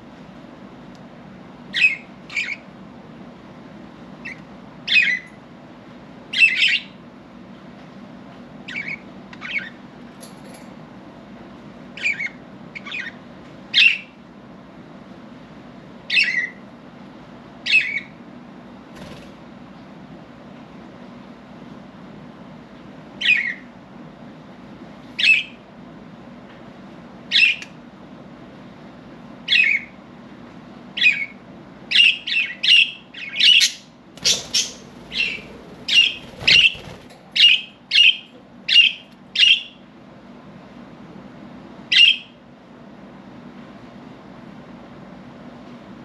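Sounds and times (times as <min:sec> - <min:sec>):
budgerigars squawking: 0:32.3 - 0:39.6.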